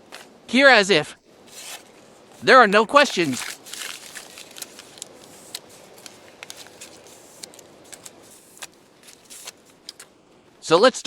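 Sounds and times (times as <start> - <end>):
faint steady hiss: 0.0 - 11.0
soft rustles: 1.4 - 10.1.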